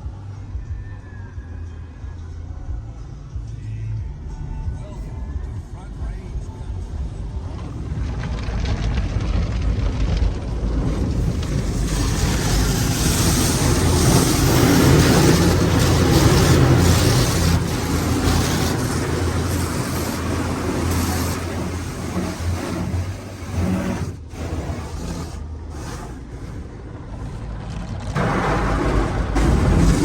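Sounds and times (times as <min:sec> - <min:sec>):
low motor hum: 0:00.0 - 0:30.0
rushing spray hiss: 0:11.1 - 0:25.9.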